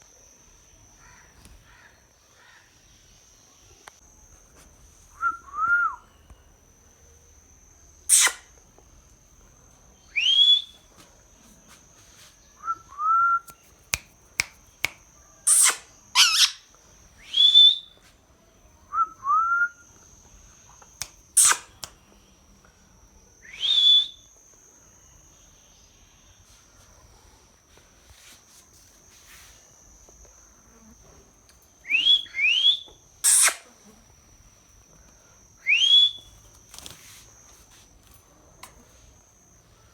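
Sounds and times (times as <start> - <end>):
faint steady high tone: 0.0 - 15.5, 16.1 - 39.9
parrot calling and whistling: 8.1 - 8.5, 15.5 - 17.9, 21.4 - 21.9, 31.8 - 33.6
parrot shrieks: 8.1 - 8.5, 15.4 - 16.7, 21.4 - 21.8, 32.4 - 33.7.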